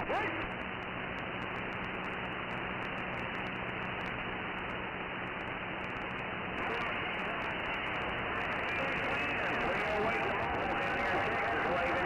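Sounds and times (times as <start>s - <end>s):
faint steady hum: 0.0s - 12.0s
radio static hiss: 0.0s - 12.0s
interference ticks: 0.5s - 6.3s.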